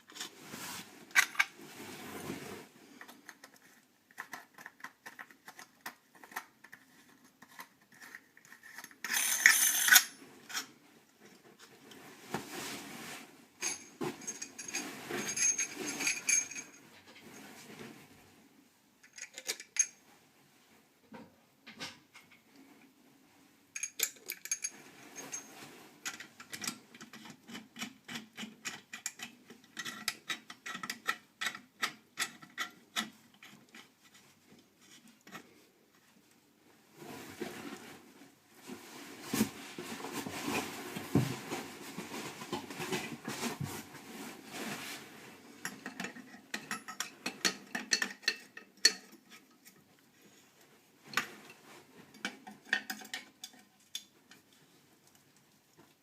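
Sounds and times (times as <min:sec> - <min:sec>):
hand scraping and rubbing: 0:00.0 - 0:10.8, 0:11.5 - 0:13.4.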